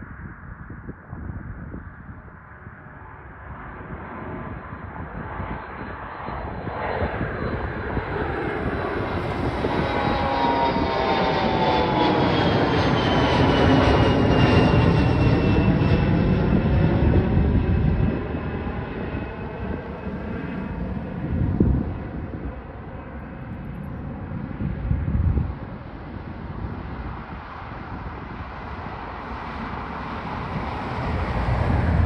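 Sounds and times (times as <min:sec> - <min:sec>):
jet engines roaring: 0:02.7 - 0:32.0
high-pitched jet whine: 0:05.3 - 0:22.4, 0:28.8 - 0:32.0.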